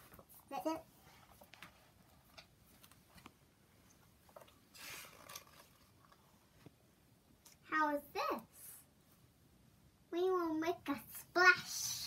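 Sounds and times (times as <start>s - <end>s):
pages rustling: 1.0s - 3.4s.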